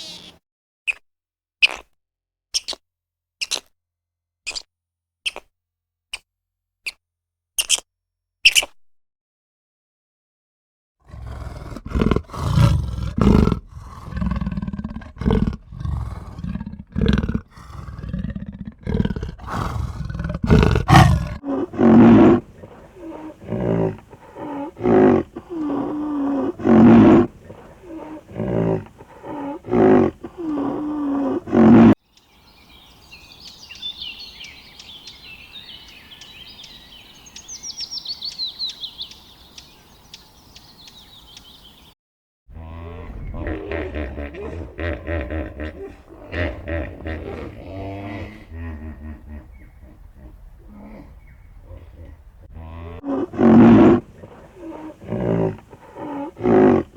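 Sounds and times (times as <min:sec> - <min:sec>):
small birds chirping: 0:00.0 - 0:01.0, 0:15.1 - 0:42.0, 0:49.2 - 0:52.5
lion growling and roaring: 0:11.0 - 0:32.0, 0:42.5 - 0:56.9.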